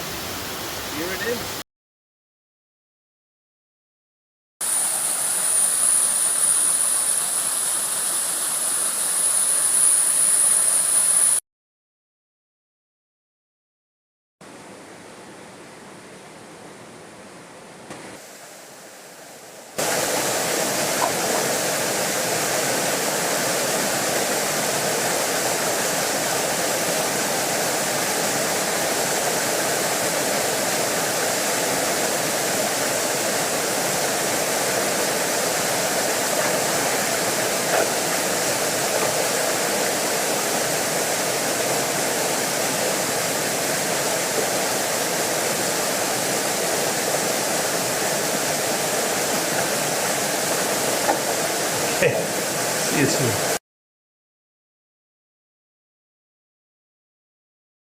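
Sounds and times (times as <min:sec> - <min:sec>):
waterfall rushing: 0:00.0 - 0:01.6, 0:04.6 - 0:11.4, 0:18.2 - 0:53.6.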